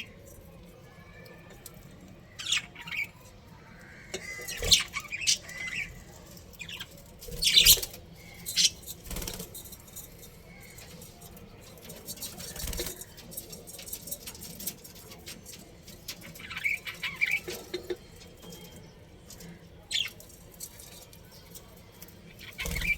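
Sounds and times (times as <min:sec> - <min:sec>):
budgerigars chirping: 0:06.6 - 0:08.9
light clicks and rustles: 0:08.8 - 0:22.9.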